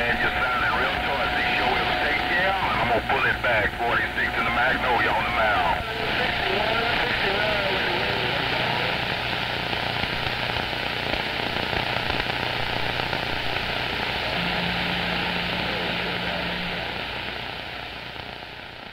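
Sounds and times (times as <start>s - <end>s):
low steady hum: 0.0s - 18.9s
radio static hiss: 0.0s - 18.9s
low tone: 14.3s - 17.2s.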